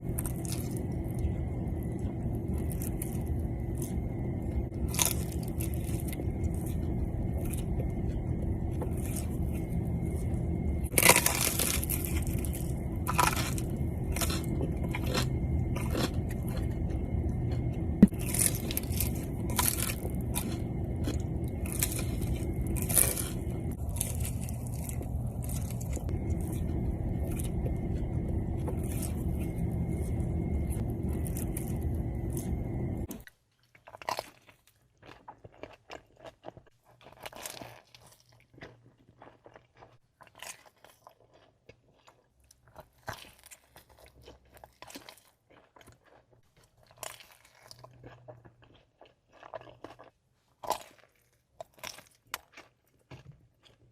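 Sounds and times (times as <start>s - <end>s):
steady low hum: 0.0s - 33.3s
chewing: 0.0s - 53.9s
crunching pizza crust: 0.0s - 53.9s.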